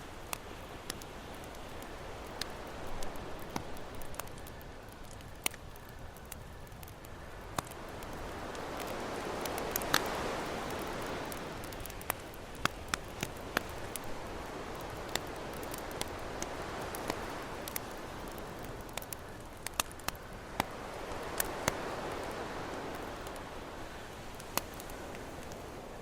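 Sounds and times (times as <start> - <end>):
campfire crackling: 0.0 - 26.0
ocean waves: 7.6 - 26.0.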